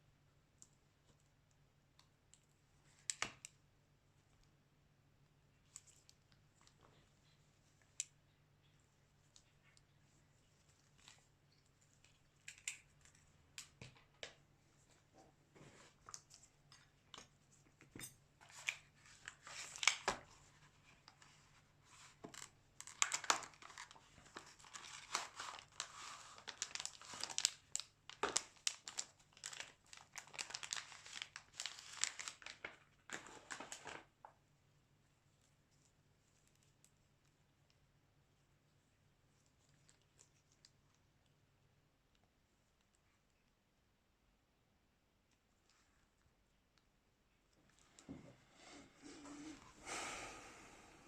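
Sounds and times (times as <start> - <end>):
plastic film crinkling and tearing: 22.3 - 34.1.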